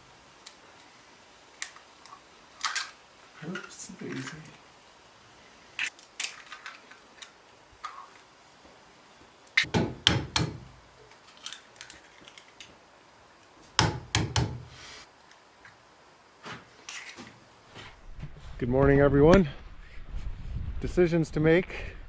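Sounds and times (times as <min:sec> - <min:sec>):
knocks and thuds: 0:09.6 - 0:10.8, 0:13.8 - 0:14.7.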